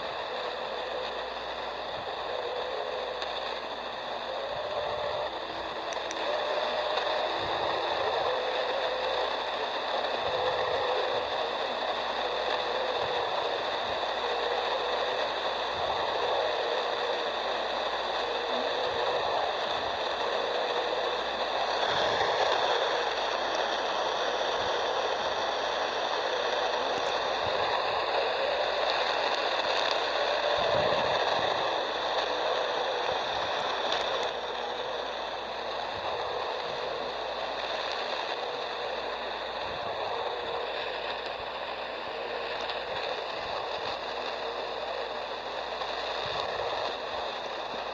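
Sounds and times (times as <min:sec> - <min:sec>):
faint steady tones: 0:00.0 - 0:47.9
radio static hiss: 0:00.0 - 0:47.9.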